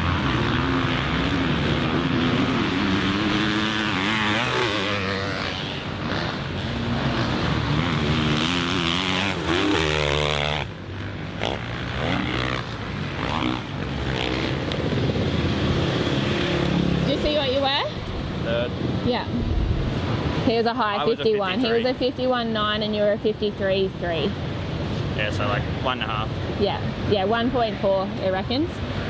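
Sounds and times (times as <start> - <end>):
motocross bike engine revving: 0.0 - 17.8.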